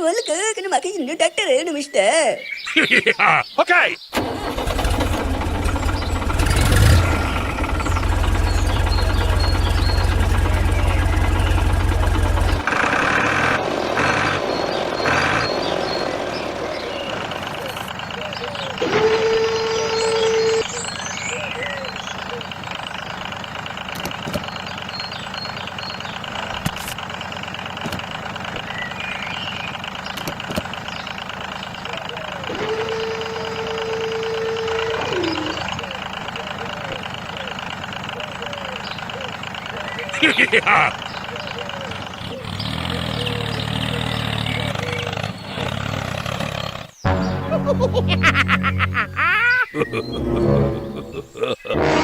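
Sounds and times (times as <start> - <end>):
tractor engine idling: 4.1 - 51.5
motor running steadily: 4.5 - 45.5.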